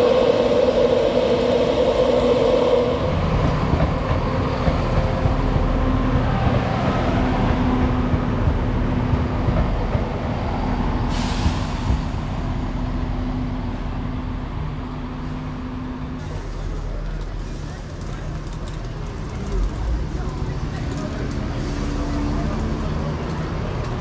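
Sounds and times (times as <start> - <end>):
hiss of air: 0.0 - 3.5, 11.1 - 12.2
diesel train engines humming: 0.0 - 16.9
wheels rumbling on rail: 0.0 - 24.0.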